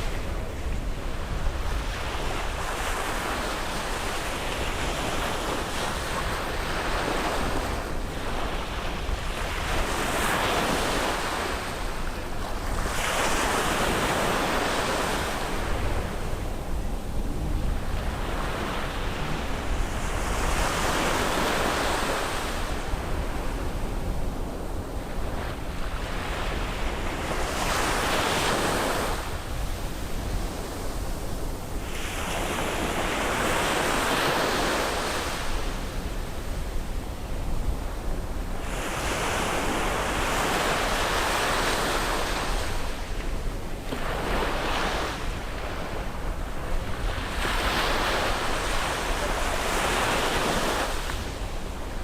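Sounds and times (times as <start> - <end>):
sea waves breaking on beach: 0.0 - 52.0
steady low rumble: 15.5 - 20.8.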